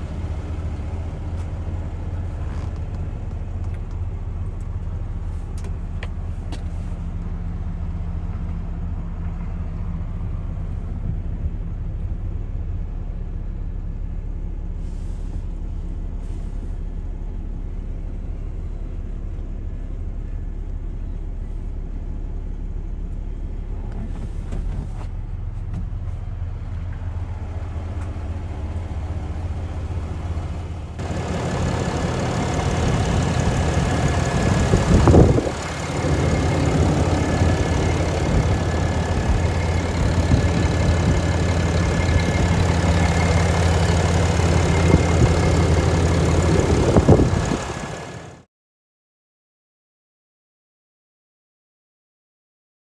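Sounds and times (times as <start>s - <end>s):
diesel truck engine running: 0.0s - 8.3s, 23.0s - 48.4s
steady high whine: 29.4s - 48.3s.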